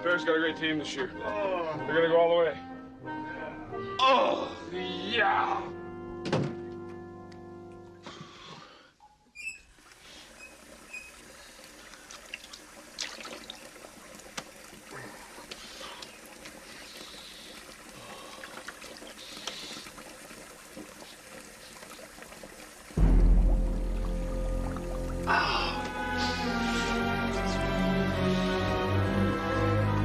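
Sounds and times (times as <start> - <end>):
water running and trickling: 9.4 - 30.0
small splashes and clicks: 9.9 - 22.9.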